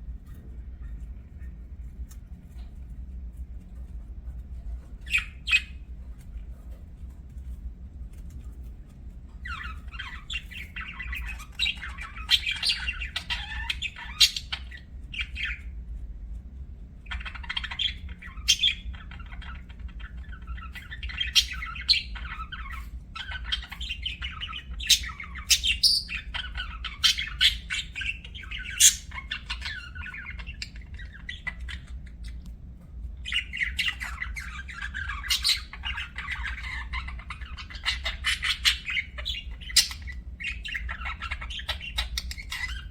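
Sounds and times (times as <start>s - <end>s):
budgerigar chirping chatter: 5.0s - 5.8s, 9.4s - 15.7s, 17.1s - 32.4s, 33.2s - 42.9s.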